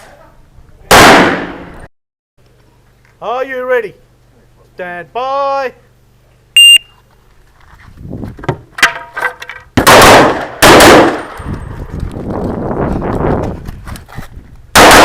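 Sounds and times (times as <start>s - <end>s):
pistol shots: 0.9s - 1.7s, 9.8s - 11.4s, 14.8s - 15.0s
loud gun blasts: 0.9s - 1.8s, 9.8s - 11.4s, 14.8s - 15.0s
shot timer beep: 6.6s - 6.9s.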